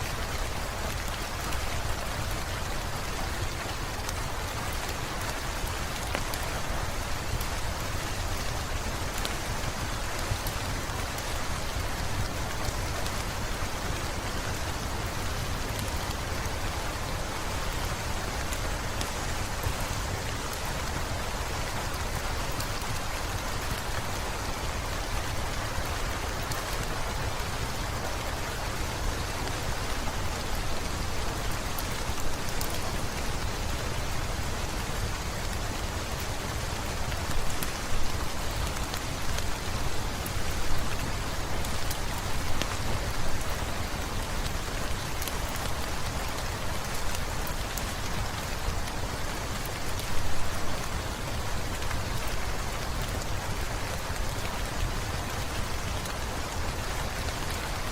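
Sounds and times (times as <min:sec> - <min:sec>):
heavy rain falling: 0:00.0 - 0:57.9
wood fire crackling: 0:00.1 - 0:57.6.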